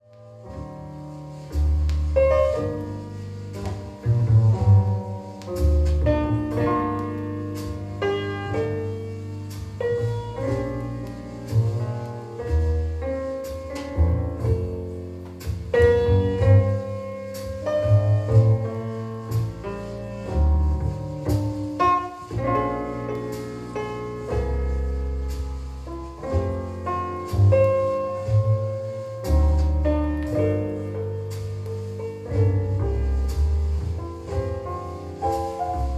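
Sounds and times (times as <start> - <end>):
instrumental music with piano: 0.0 - 35.9
deep double-bass line: 0.5 - 35.9.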